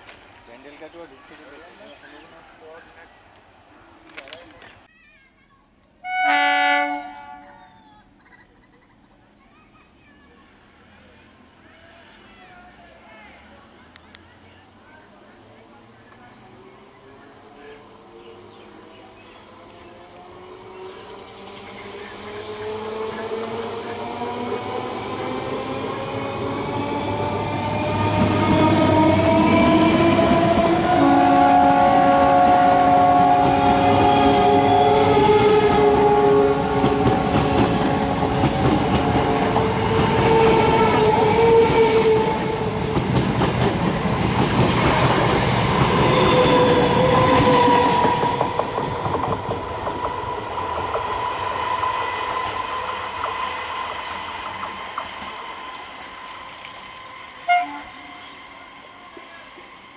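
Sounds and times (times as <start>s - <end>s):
train horn chord: 6.0s - 7.6s, 28.0s - 38.4s, 57.4s - 58.6s
train rumble: 16.0s - 59.9s
train wheels clattering over rail joints: 47.2s - 51.2s.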